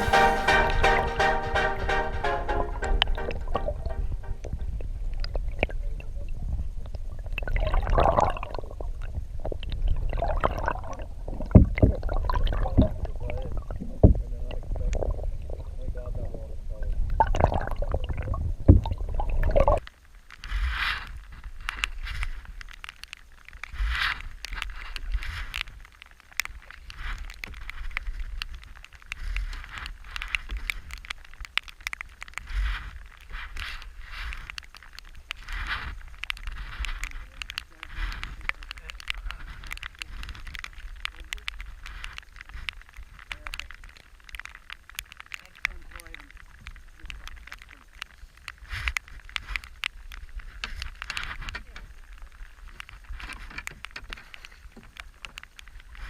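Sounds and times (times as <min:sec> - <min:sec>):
wind rumble on microphone: 0:04.4 - 0:19.8.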